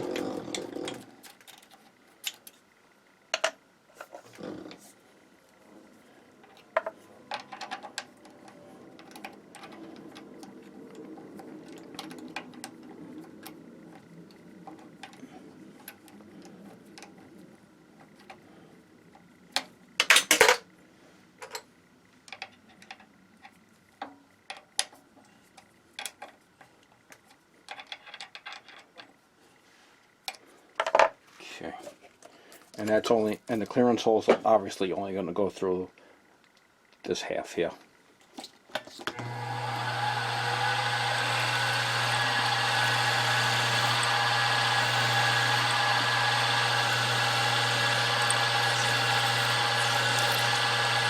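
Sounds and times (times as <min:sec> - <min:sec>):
drill cutting hum: 0:39.1 - 0:51.0.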